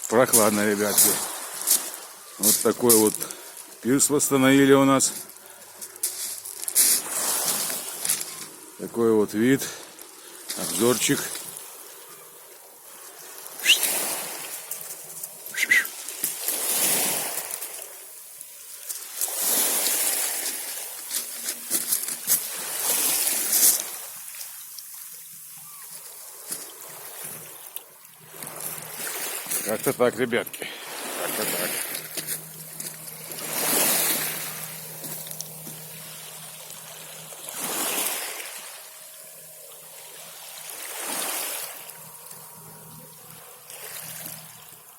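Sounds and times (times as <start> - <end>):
small waves washing on shore: 0.0 - 44.9
high chirp: 13.6 - 14.0.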